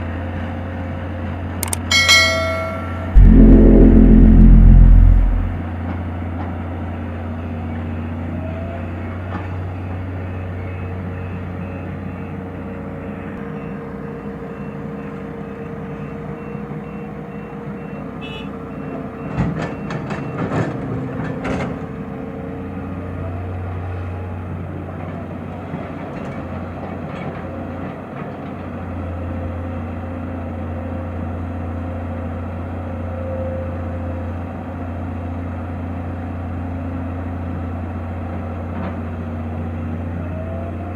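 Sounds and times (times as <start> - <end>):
reversing alarm beeping: 1.6 - 5.6.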